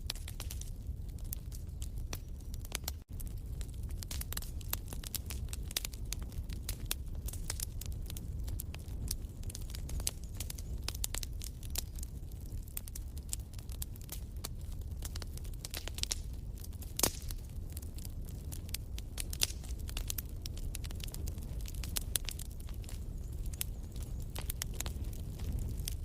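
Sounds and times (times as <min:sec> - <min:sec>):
low rumble of flames: 0:00.0 - 0:26.0
wood fire crackling and popping: 0:00.0 - 0:26.0.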